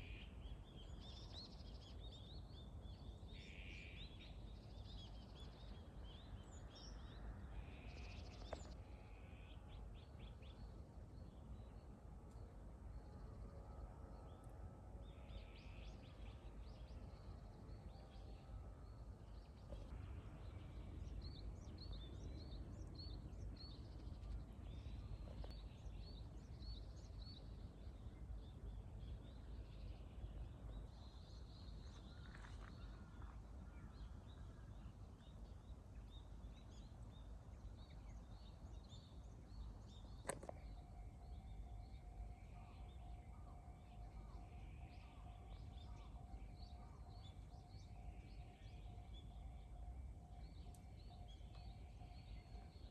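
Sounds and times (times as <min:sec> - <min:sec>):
wild birds chirping: 0:30.8 - 0:52.9.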